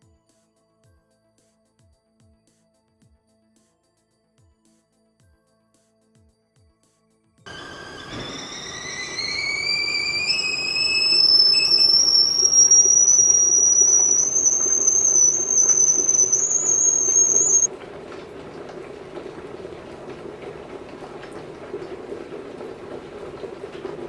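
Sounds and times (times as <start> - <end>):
kettle whistling: 7.5 - 24.0
rumble of water heating: 7.5 - 24.0.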